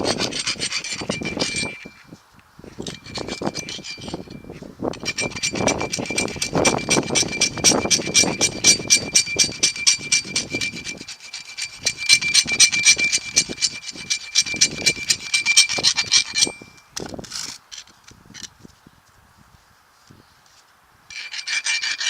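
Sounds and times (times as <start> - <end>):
metal ringing: 0.0 - 2.0, 2.8 - 17.0
hand strokes smoothing steel: 0.0 - 16.7, 20.5 - 22.0.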